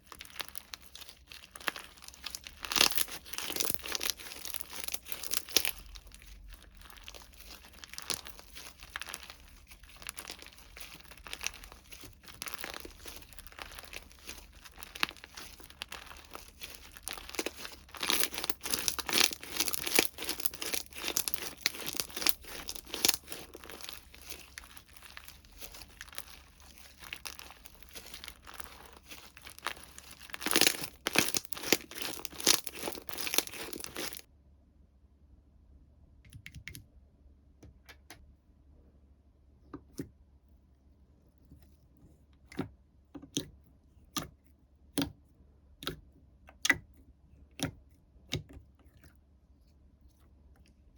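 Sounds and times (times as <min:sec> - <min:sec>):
plastic packaging crinkling and tearing: 0:00.0 - 0:34.3.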